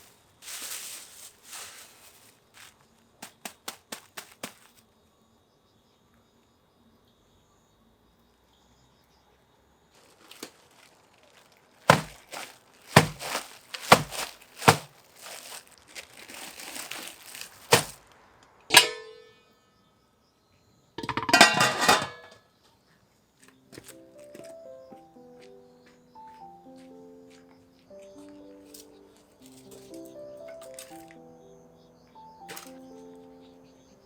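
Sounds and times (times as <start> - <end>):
ringing metallic clink: 18.7 - 19.4.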